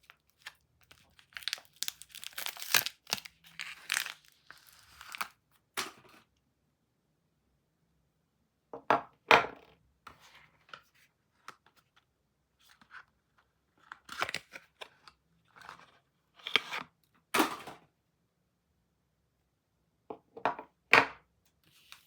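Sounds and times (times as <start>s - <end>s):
packaging being torn and crinkled: 0.0s - 5.4s.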